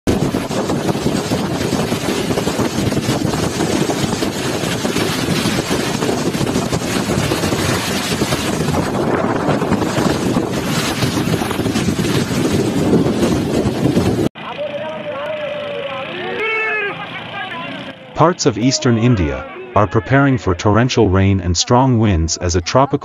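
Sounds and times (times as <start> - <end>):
wind buffeting microphone: 0.1 - 14.3.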